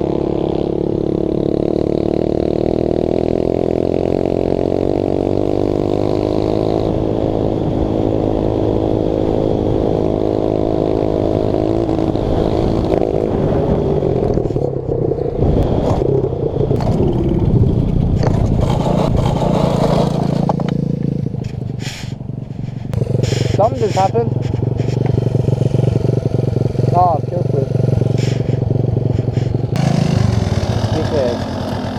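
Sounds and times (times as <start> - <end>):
pit bike engine at high revs: 0.0 - 31.9
engine clatter: 16.7 - 31.9.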